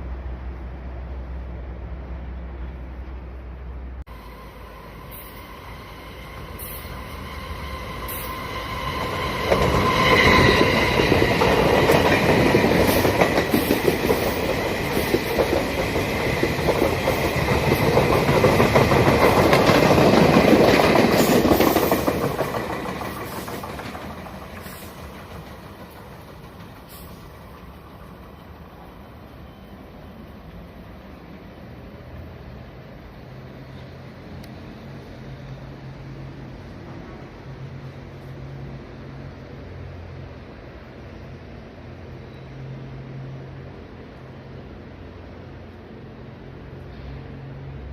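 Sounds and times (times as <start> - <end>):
passenger train passing: 0.0 - 47.9
high steady tone: 4.1 - 13.4.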